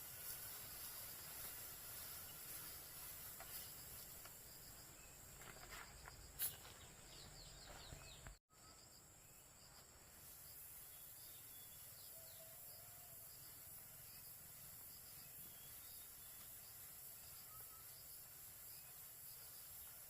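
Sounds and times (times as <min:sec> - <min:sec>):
insects hissing: 0:00.0 - 0:08.2, 0:08.8 - 0:20.0
birds chirping: 0:02.1 - 0:09.4.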